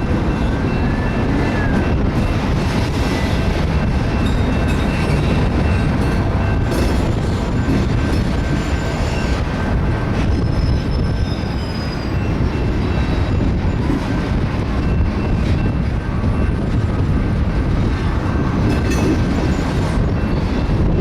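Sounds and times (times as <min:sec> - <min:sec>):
freight train wheels rumbling on rails: 0:00.0 - 0:21.0
faint high squealing: 0:10.4 - 0:13.4.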